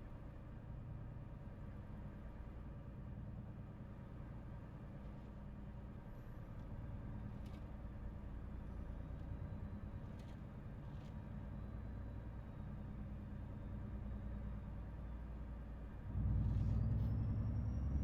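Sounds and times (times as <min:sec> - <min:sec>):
truck diesel engine droning: 0:16.0 - 0:18.0.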